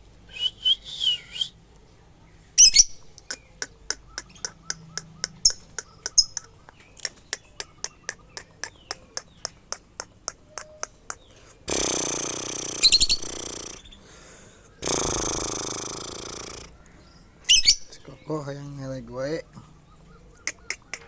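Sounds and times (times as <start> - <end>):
bird rapid high chirps: 2.6 - 14.1, 17.4 - 18.4, 19.2 - 21.0
bird harsh screeches: 11.7 - 14.1.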